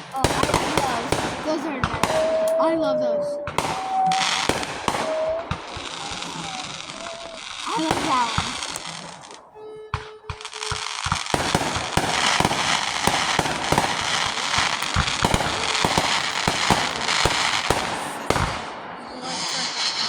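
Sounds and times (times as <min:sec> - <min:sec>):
fireworks popping and crackling: 0:00.0 - 0:20.0
steady tone: 0:02.0 - 0:13.0.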